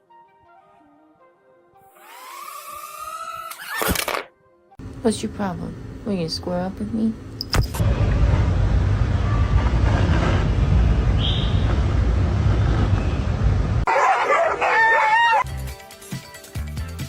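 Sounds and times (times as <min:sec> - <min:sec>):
loud low rumbling: 0:07.8 - 0:13.9
rooster crowing: 0:13.9 - 0:15.4.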